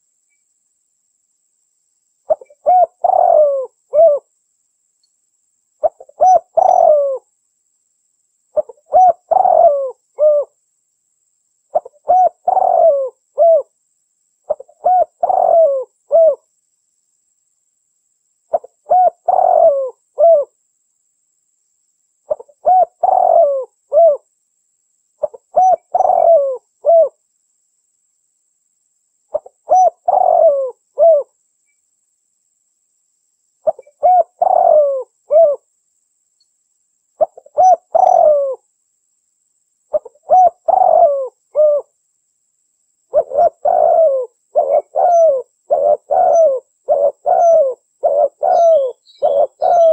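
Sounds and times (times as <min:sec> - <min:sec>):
dove cooing: 0:02.3 - 0:04.3, 0:05.8 - 0:07.3, 0:08.6 - 0:10.6, 0:11.7 - 0:13.7, 0:14.5 - 0:16.5, 0:18.5 - 0:20.6, 0:22.3 - 0:24.2, 0:25.2 - 0:27.2, 0:29.3 - 0:31.3, 0:33.6 - 0:35.6, 0:37.2 - 0:38.6, 0:39.9 - 0:41.9, 0:43.1 - 0:49.9.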